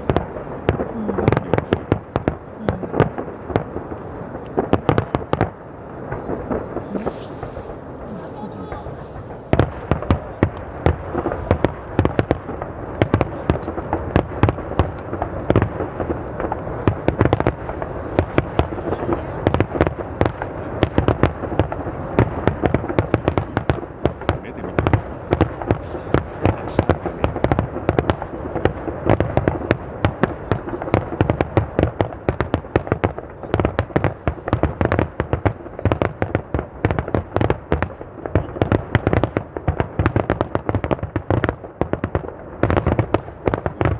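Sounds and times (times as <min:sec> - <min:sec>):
fireworks exploding: 0:00.0 - 0:43.9.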